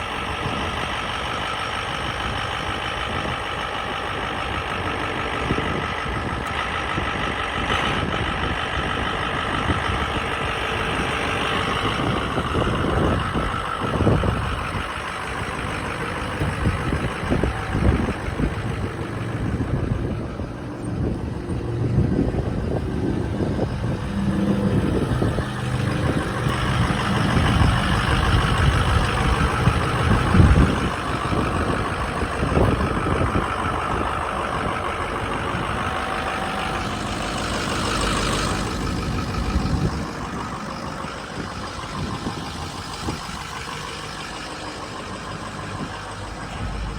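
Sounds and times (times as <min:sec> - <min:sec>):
diesel engine idling: 0:00.0 - 0:46.9
low rumbles and knocks: 0:09.6 - 0:44.2.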